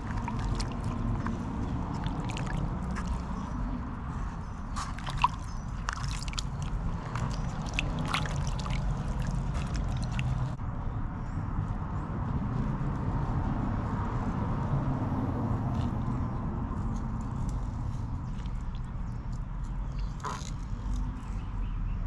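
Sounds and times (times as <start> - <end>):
wet sloshing and squishing: 0.0 - 10.6, 17.9 - 21.0.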